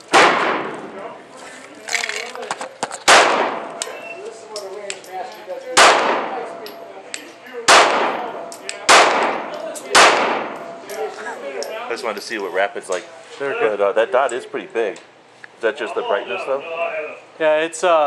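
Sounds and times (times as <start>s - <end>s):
pistol shots with echo: 0.1s - 1.0s, 3.1s - 4.1s, 5.8s - 6.8s, 7.7s - 10.8s
small metallic clinks: 3.8s - 5.7s, 6.4s - 7.6s, 8.2s - 9.9s, 10.5s - 12.5s.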